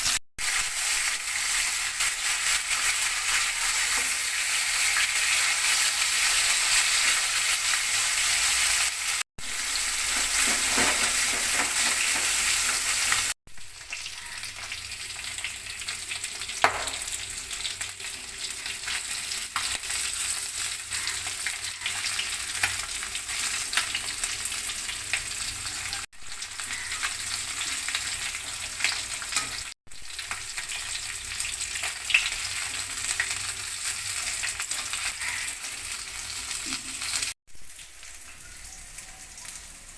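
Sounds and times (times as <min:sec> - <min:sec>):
fish sizzling in hot oil: 0:00.0 - 0:39.9
sharp oil pops: 0:16.6 - 0:17.0.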